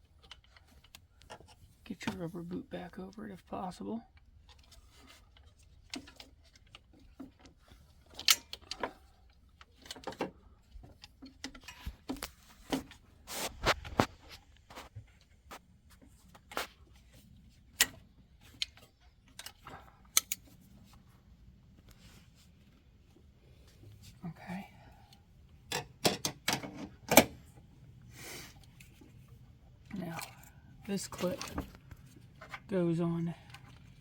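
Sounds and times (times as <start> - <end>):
plastic parts clicking and tapping: 4.1 - 13.0, 16.0 - 21.0, 25.7 - 27.4
rubbing scrapes: 13.2 - 14.2.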